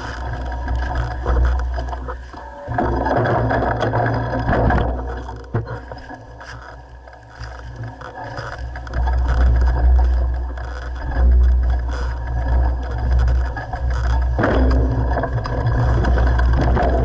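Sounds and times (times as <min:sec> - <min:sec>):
bike rattling: 0:00.0 - 0:17.0
wind rumble on microphone: 0:08.5 - 0:17.0.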